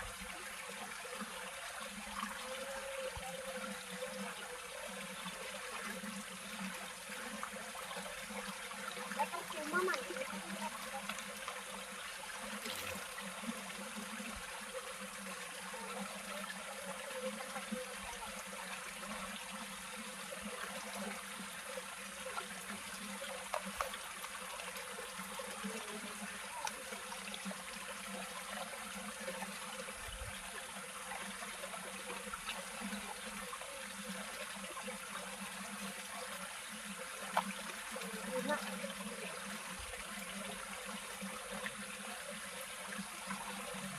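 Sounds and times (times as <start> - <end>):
stream water trickling: 0.0 - 43.9
faint ticks: 22.3 - 24.8.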